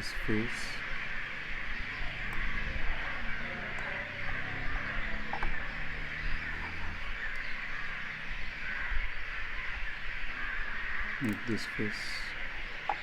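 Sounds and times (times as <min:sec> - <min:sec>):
computer mouse clicks: 0:03.7 - 0:04.4, 0:05.3 - 0:05.6.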